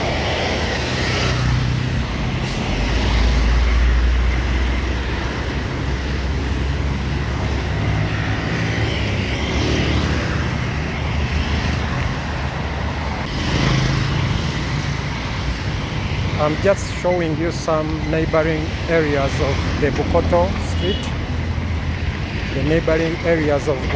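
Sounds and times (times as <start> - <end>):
tyres on road: 0.0 - 23.9
vehicle engines running: 0.0 - 23.9.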